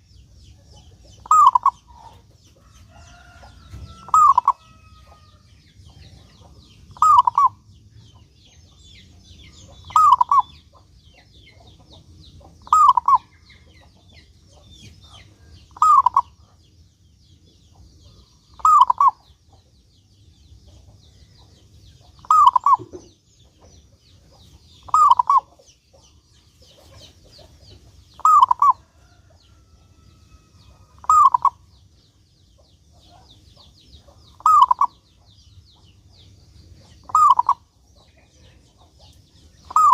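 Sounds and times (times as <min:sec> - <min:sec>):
small birds chirping: 0:00.0 - 0:39.9
dove cooing: 0:01.2 - 0:02.2, 0:03.2 - 0:05.2, 0:06.9 - 0:07.6, 0:09.8 - 0:10.6, 0:12.6 - 0:13.3, 0:15.7 - 0:16.4, 0:18.6 - 0:19.2, 0:22.2 - 0:23.1, 0:24.8 - 0:25.5, 0:28.2 - 0:29.2, 0:30.8 - 0:31.6, 0:34.3 - 0:35.0, 0:37.0 - 0:37.7, 0:39.6 - 0:39.9.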